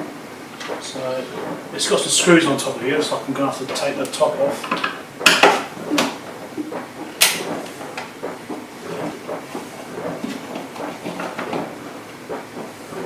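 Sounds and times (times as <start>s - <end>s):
sharp click: 7.2s - 7.6s.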